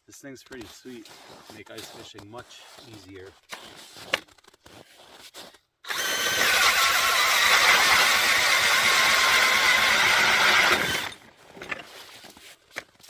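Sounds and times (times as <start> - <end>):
drill motor whine: 5.9 - 11.2
ice auger grinding: 5.9 - 11.3.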